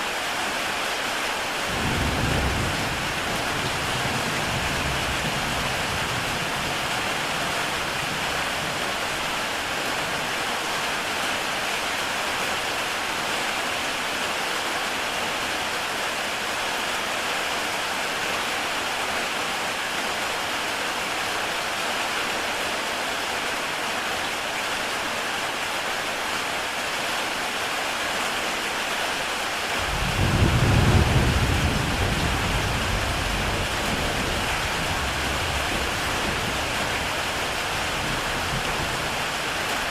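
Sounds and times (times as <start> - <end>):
heavy rain on a tile roof: 0.0 - 39.9
thunder rumble: 29.8 - 39.9.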